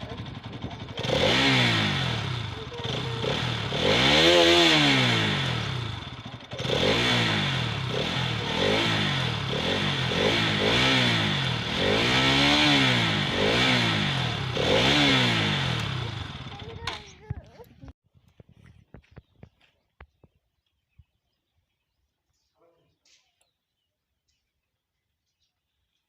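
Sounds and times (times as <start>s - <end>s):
motorcycle engine revving: 0.0s - 17.5s.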